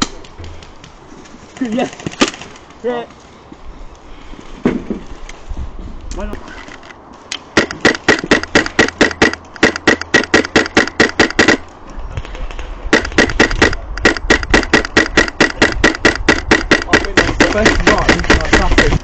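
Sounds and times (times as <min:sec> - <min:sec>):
airsoft rifle firing full auto: 0:07.6 - 0:11.6, 0:12.9 - 0:18.9.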